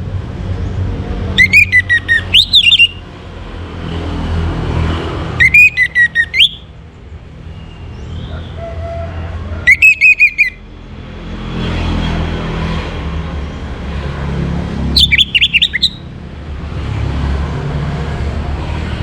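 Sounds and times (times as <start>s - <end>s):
thrush whistled song: 1.4s - 3.0s, 5.4s - 6.7s, 9.7s - 10.6s, 15.0s - 16.1s.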